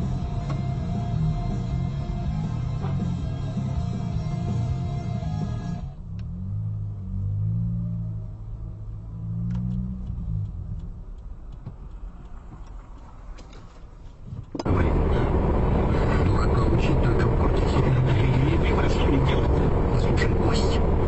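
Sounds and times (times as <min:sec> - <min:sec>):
car engine inside moving car: 0:00.0 - 0:21.0
road noise: 0:00.0 - 0:21.0
faint clicks: 0:09.5 - 0:14.7.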